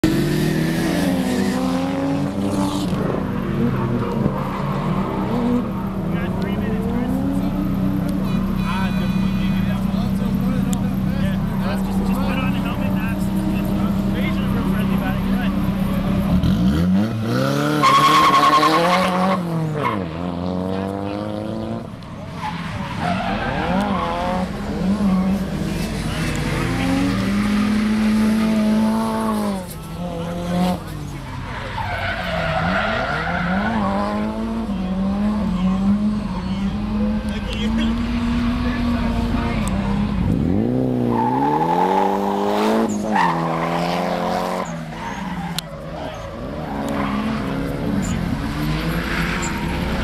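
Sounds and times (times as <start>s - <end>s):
tyres skidding: 0.0s - 50.0s
tires squealing: 0.5s - 50.0s
car engine revving hard: 16.2s - 21.9s, 23.5s - 31.0s, 32.3s - 45.2s.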